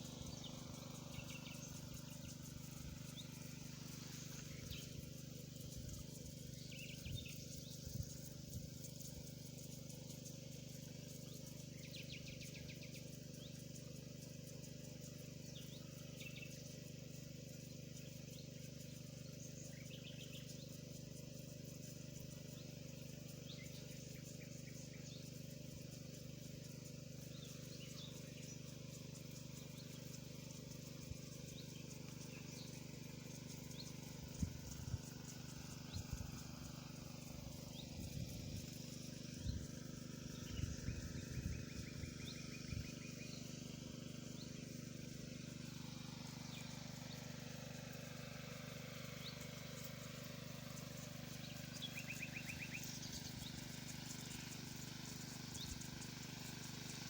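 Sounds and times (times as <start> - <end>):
steady low hum: 0.0 - 57.0
high bird chirps: 51.5 - 53.6.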